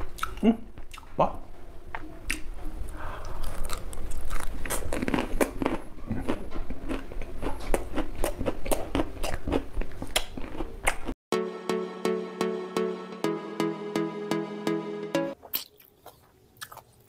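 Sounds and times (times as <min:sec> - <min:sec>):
chewing raw cauliflower crunches: 0:03.4 - 0:11.2, 0:15.4 - 0:17.0.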